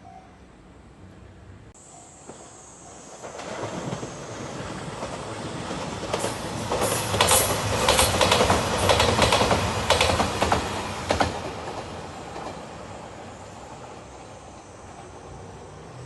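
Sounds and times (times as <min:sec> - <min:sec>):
diesel train approaching: 0:00.0 - 0:16.0
wheels clacking over rail joints: 0:04.9 - 0:12.8.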